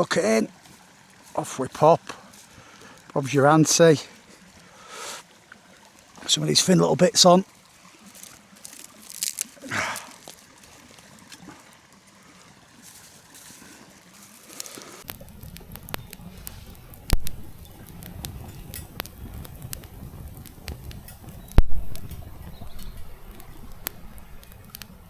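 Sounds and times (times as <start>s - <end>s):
kindling cracking and snapping: 8.0s - 11.6s, 14.2s - 25.0s
low rumble: 15.1s - 25.0s.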